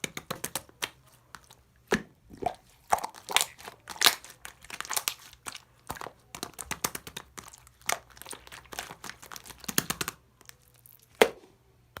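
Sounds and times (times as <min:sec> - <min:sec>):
slime crackling and popping: 0:02.3 - 0:11.3.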